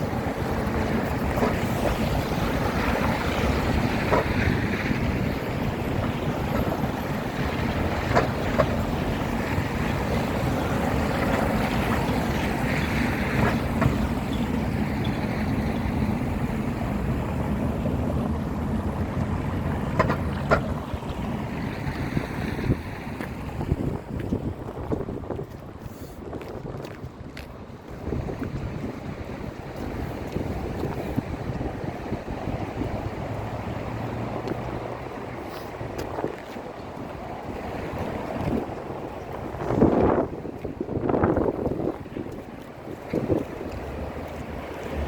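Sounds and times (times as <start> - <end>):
low outdoor rumble: 0.0 - 26.0
wind buffeting microphone: 0.0 - 45.0.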